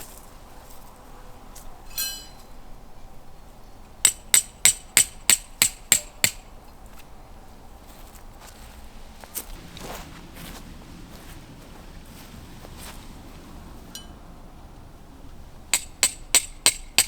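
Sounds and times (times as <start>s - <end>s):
hammer striking metal: 1.9s - 2.5s, 4.0s - 6.4s, 15.7s - 17.0s
metallic clink: 1.9s - 2.5s, 13.9s - 14.2s.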